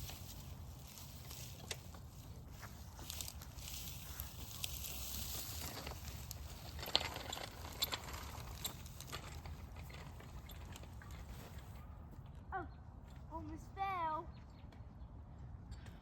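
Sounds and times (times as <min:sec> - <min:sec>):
bicycle tyres rustling through grass: 0:00.0 - 0:11.7
bike clicks and knocks: 0:00.0 - 0:11.7.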